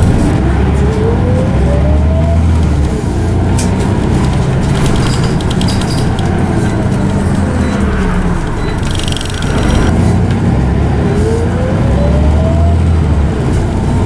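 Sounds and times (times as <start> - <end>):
bus diesel engine droning: 0.0 - 14.0
gearbox whine: 0.0 - 14.0
short rattles: 3.5 - 9.9.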